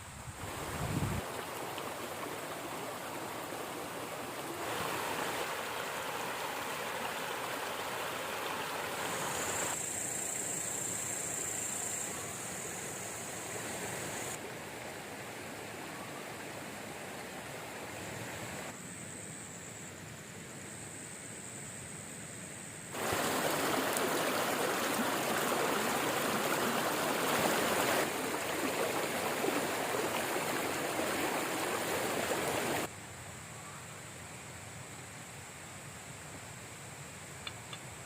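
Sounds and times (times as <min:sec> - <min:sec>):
river water rushing: 0:00.0 - 0:09.8, 0:23.0 - 0:32.9.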